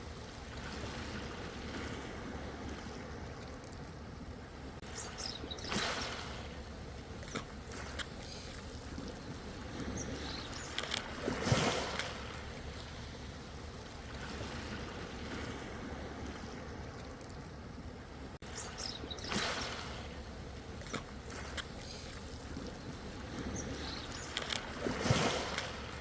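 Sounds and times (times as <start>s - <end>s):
ocean waves washing in: 0.0s - 26.0s
water splashes and trickles: 0.0s - 26.0s
wave breaking: 23.1s - 26.0s.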